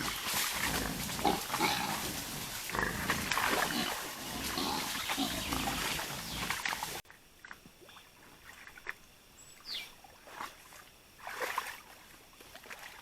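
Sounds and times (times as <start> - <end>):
steady rustling: 0.0 - 3.3
wild boars grunting: 0.0 - 7.0.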